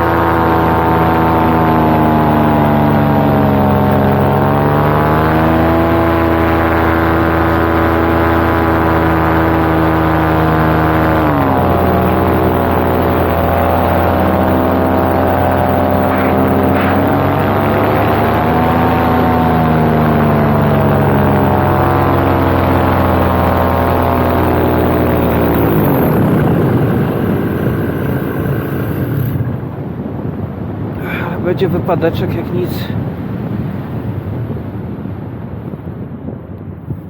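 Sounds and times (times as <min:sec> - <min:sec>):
paramotor engine running: 0:00.0 - 0:34.5
wind noise on microphone: 0:00.0 - 0:37.0.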